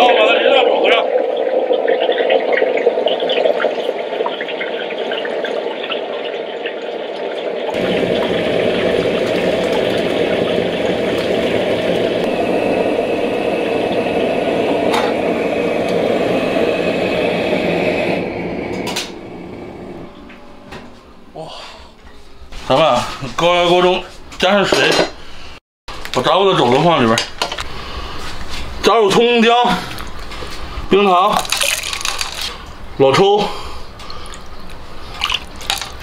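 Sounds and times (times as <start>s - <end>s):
hot oil sizzling in a wok: 7.8s - 17.9s.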